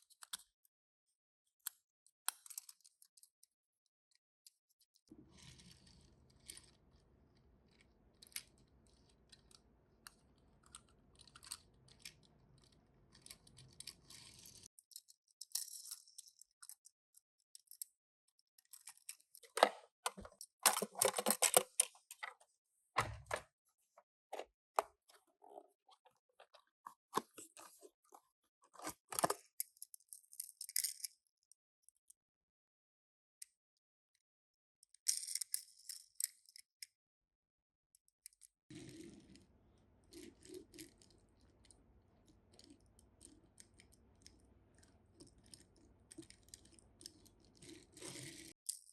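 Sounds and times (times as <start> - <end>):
crinkling and clatter: 18.6 - 23.5, 24.3 - 30.8
packaging clicks and rustles: 18.8 - 22.4.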